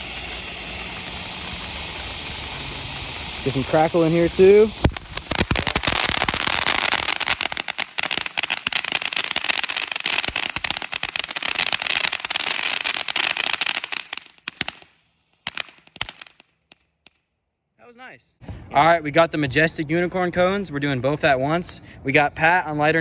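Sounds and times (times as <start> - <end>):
firework fountain crackling: 0.0 - 17.2.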